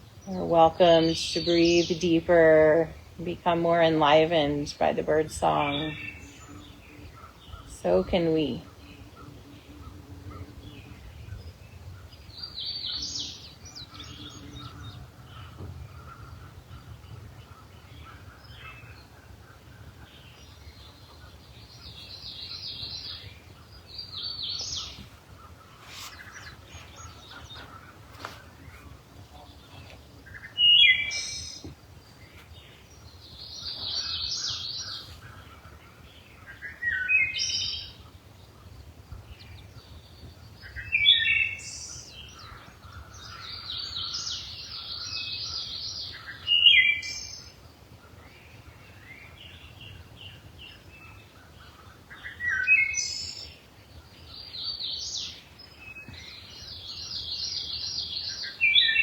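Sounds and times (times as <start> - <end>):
songbirds trilling: 0.0 - 59.0
faint bird chirps: 5.8 - 47.6.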